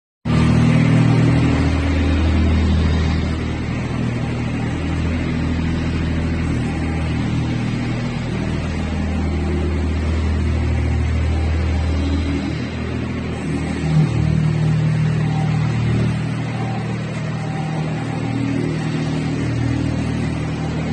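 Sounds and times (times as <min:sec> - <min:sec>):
diesel engine running: 0:00.2 - 0:20.9.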